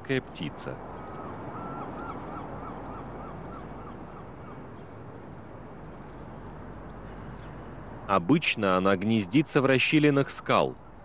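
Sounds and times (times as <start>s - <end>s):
short bird calls: 7.0s - 8.6s.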